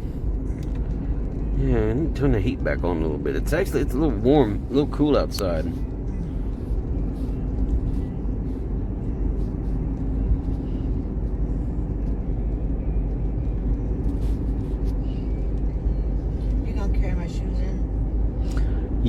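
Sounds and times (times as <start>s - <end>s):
car cabin road and engine noise: 0.0s - 19.0s.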